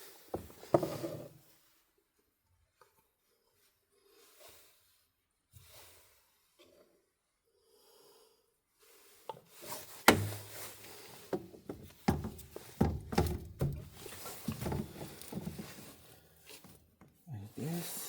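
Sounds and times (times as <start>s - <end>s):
tools clicking and knocking: 11.3s - 15.6s.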